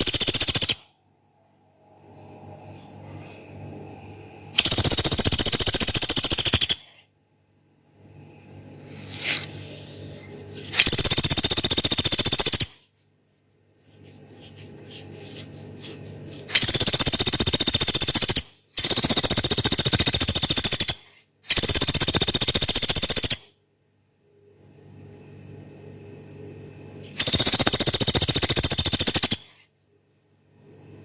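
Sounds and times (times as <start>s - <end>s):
woodpecker rattling call: 0.0s - 0.8s, 4.6s - 7.0s, 10.7s - 12.8s, 16.4s - 23.5s, 27.2s - 29.6s.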